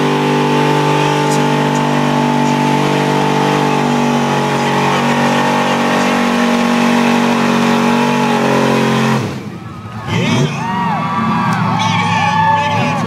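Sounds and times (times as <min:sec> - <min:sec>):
truck engine revving high: 0:00.0 - 0:13.0.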